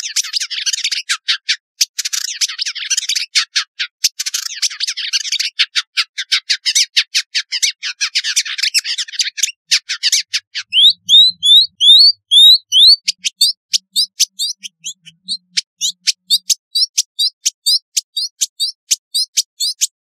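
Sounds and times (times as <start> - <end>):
bird chattering notes: 7.8 - 20.0
bird rising whistles: 10.7 - 17.3.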